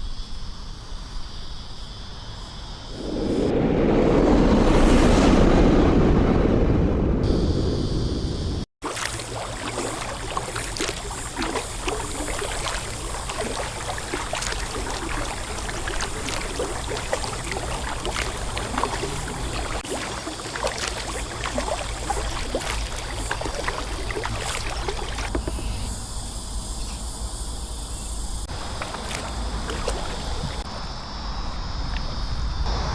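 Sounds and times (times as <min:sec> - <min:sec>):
wind rumble on microphone: 0:02.7 - 0:08.6
water splashing off paddle blades: 0:08.8 - 0:25.6, 0:28.4 - 0:30.7.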